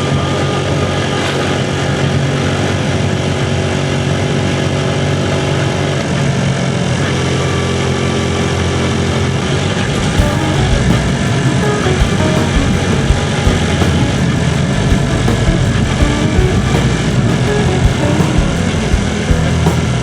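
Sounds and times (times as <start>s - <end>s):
road noise rush: 9.3s - 20.0s
motorcycle engine humming: 10.0s - 20.0s.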